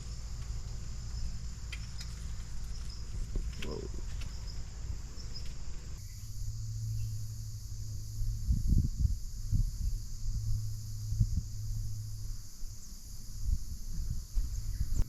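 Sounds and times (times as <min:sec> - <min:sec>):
insects chorus: 0:00.0 - 0:15.0
low background rumble: 0:00.0 - 0:15.0.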